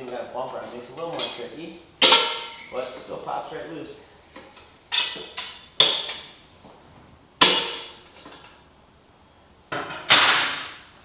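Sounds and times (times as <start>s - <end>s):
metallic clanks: 0.0s - 3.1s.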